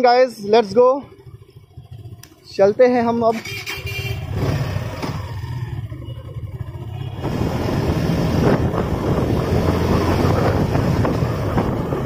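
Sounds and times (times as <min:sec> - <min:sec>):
motorcycle engine accelerating: 0:01.0 - 0:12.0
wind rushing over microphone: 0:07.2 - 0:12.0.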